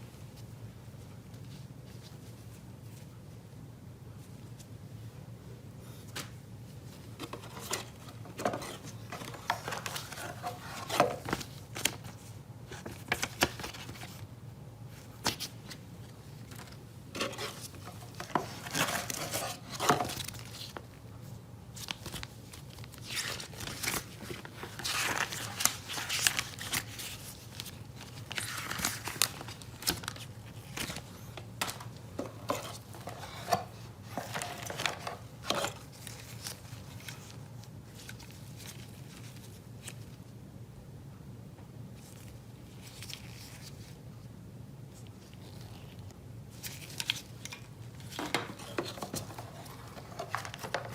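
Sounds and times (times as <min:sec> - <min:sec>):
plastic packaging crinkling: 0:16.4 - 0:21.0, 0:21.7 - 0:39.9, 0:45.2 - 0:50.9.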